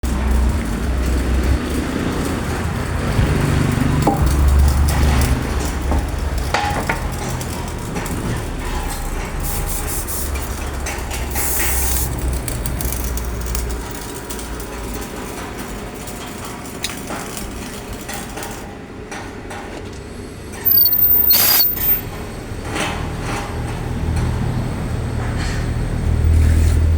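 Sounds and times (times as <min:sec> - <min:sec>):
low machinery hum: 0:00.0 - 0:20.6
metal clinks and knocks: 0:00.1 - 0:18.6.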